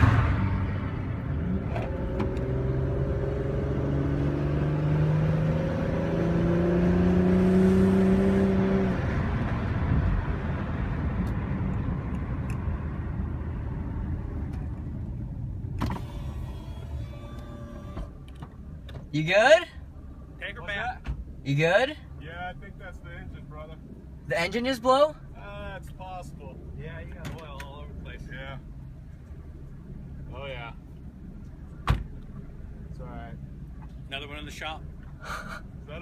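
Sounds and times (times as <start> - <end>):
car engine running: 6.2 - 36.0.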